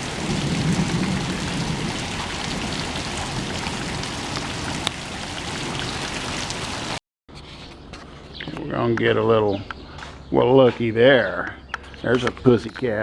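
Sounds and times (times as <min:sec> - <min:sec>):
steady rain falling: 0:00.0 - 0:07.0.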